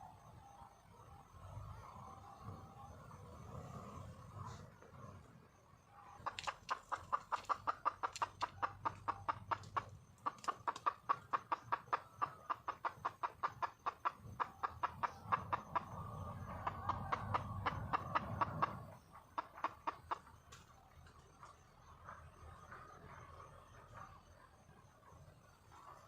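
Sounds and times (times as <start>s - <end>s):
hen clucking: 6.2s - 20.4s.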